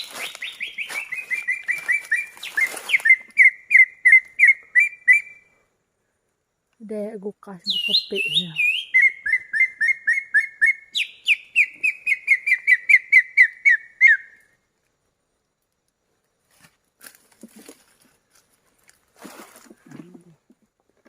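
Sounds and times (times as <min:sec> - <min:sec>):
bird-luring whistle call: 0:00.0 - 0:05.5, 0:07.7 - 0:14.5.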